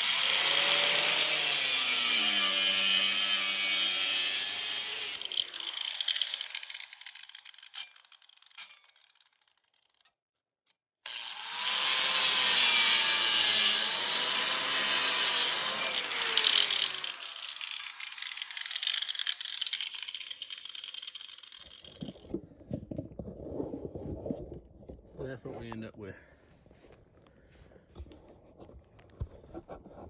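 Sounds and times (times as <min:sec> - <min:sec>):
angle grinder cutting: 0:00.0 - 0:09.5, 0:11.0 - 0:22.3.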